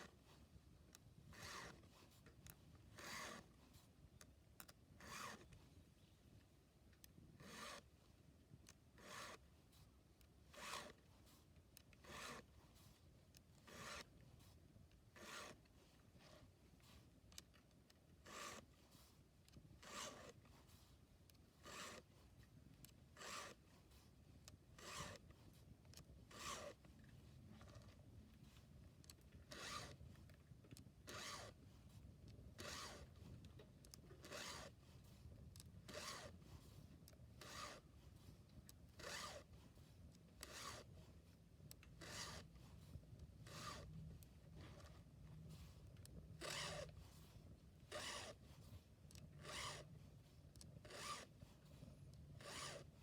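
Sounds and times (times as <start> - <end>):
hand file rasping on chain: 1.3 - 1.8, 3.0 - 3.6, 5.0 - 5.5, 7.4 - 7.9, 9.0 - 9.5, 10.5 - 11.1, 11.8 - 12.9, 13.6 - 14.6, 15.2 - 16.5, 18.2 - 18.8, 19.8 - 20.4, 21.6 - 22.1, 23.2 - 23.7, 24.8 - 25.3, 26.3 - 26.8, 29.4 - 30.3, 31.1 - 31.6, 32.6 - 33.3, 33.9 - 34.8, 35.8 - 36.5, 37.4 - 38.0, 39.0 - 39.6, 40.4 - 41.1, 42.0 - 42.6, 43.4 - 43.9, 46.4 - 53.0.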